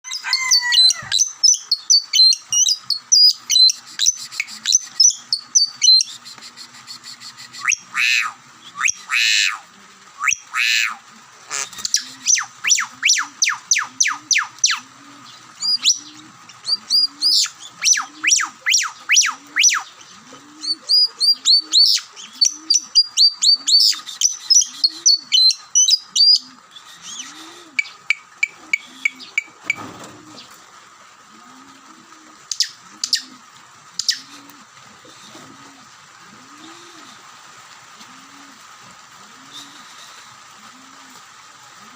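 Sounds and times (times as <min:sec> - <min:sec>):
lovebirds chirping: 0:00.0 - 0:06.4, 0:10.2 - 0:30.6
harsh bird squawks: 0:07.6 - 0:09.6, 0:10.2 - 0:14.8.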